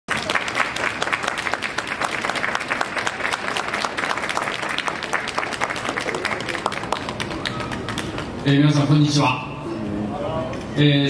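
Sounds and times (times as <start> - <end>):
crowd applauding: 0.1 - 8.4.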